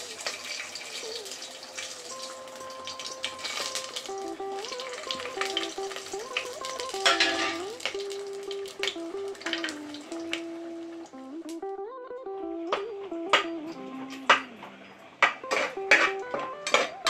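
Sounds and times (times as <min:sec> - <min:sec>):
food sizzling in hot oil: 0:00.0 - 0:11.1
simple background melody: 0:00.0 - 0:17.0
spoon scraping a pan: 0:07.0 - 0:07.8, 0:15.2 - 0:17.0.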